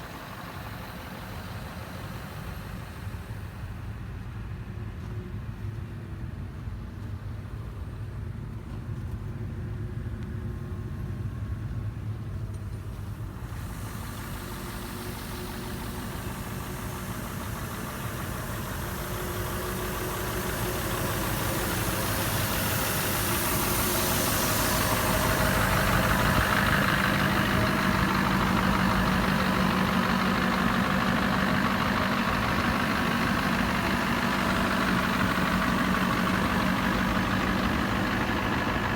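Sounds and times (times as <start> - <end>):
diesel truck engine idling: 0.0 - 8.3, 10.4 - 38.9
hiss: 13.2 - 38.9.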